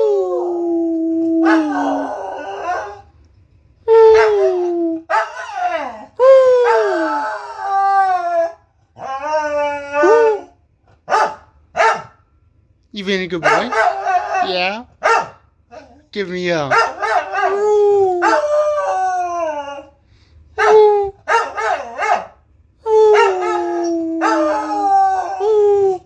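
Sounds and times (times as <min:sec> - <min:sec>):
dog howling: 0:00.0 - 0:03.1, 0:03.9 - 0:12.1, 0:13.4 - 0:16.1, 0:16.7 - 0:20.0, 0:20.6 - 0:26.0
dog yelping: 0:01.4 - 0:03.0, 0:03.9 - 0:10.5, 0:11.1 - 0:12.2, 0:13.4 - 0:16.1, 0:16.7 - 0:19.9, 0:20.6 - 0:26.0.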